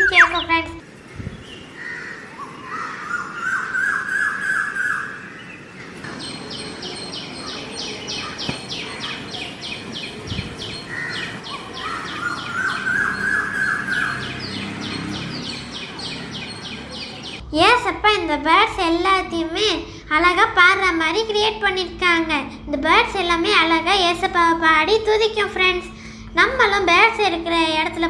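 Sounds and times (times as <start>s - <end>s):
bird chattering and chirping: 0.0s - 0.8s.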